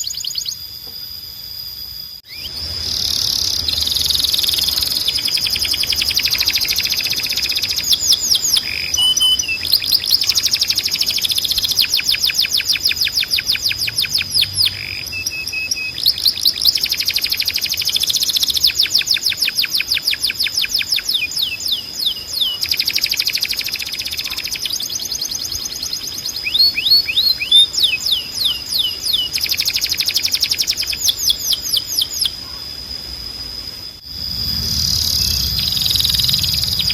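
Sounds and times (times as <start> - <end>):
canary singing trills: 0.0 - 0.8, 2.2 - 32.7, 34.1 - 36.9
steady high tone: 33.9 - 36.9.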